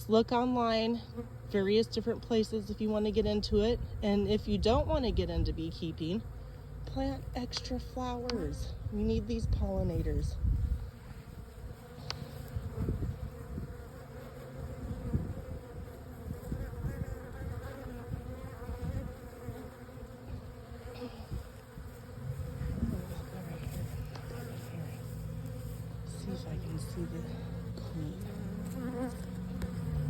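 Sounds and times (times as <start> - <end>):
bees buzzing: 0.1 - 30.0.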